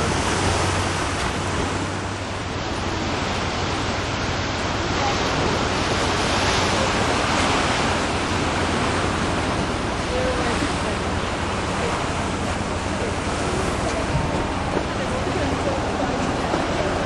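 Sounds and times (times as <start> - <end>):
ocean waves washing onto beach: 0.0 - 17.0.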